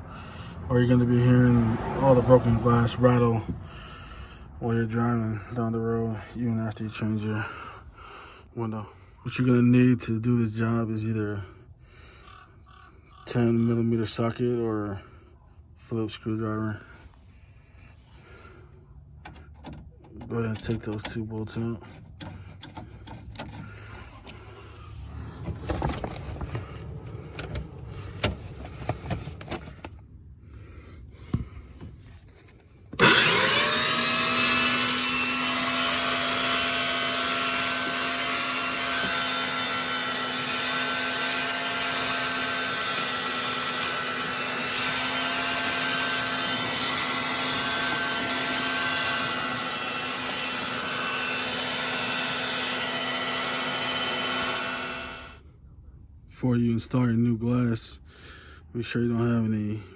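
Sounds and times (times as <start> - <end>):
vacuum cleaner running: 33.0 - 55.4.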